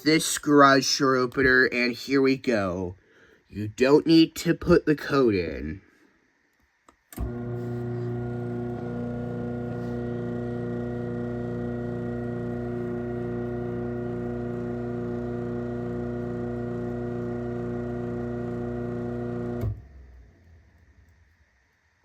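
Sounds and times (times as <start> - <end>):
garage door opener motor humming: 7.2 - 20.2.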